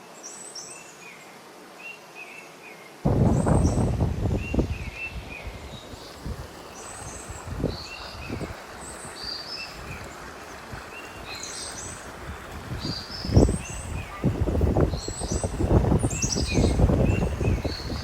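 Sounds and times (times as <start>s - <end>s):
small birds chirping: 1.9s - 18.0s
low rumbling noise: 3.1s - 8.6s.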